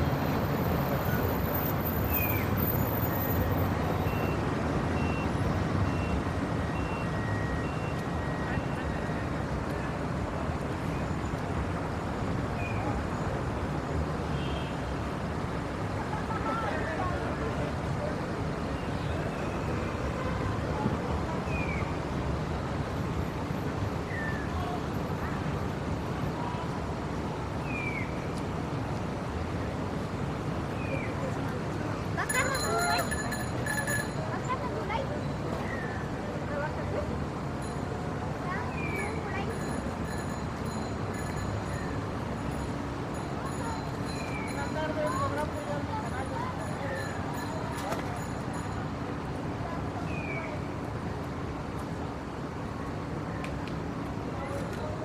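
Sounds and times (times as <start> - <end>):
city traffic rumble: 0.0 - 55.0
faint voices: 28.8 - 55.0.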